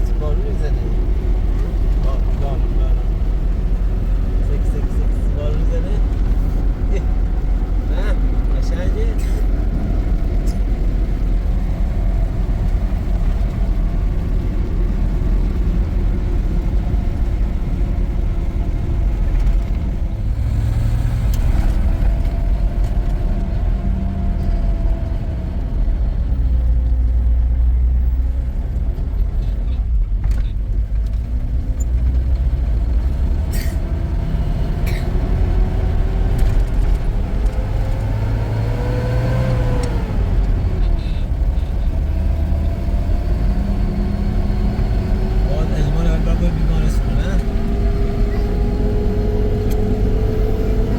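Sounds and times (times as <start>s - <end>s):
vehicle engine rumbling: 0.0s - 50.9s.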